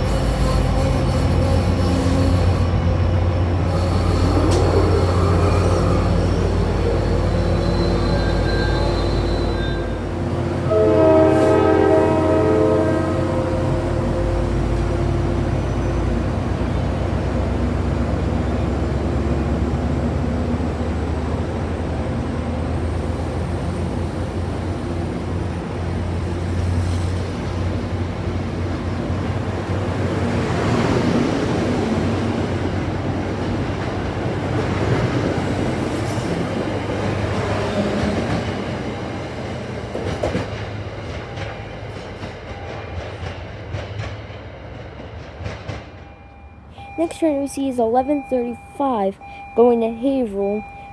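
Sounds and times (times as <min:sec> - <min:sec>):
train wheels clattering over rail joints: 0:00.0 - 0:07.4
diesel locomotive drone: 0:00.0 - 0:50.9.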